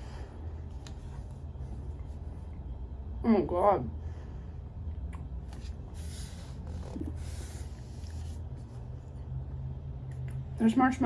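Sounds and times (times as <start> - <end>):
steady low hum: 0.0 - 11.0
soft hissing breaths: 5.6 - 8.8.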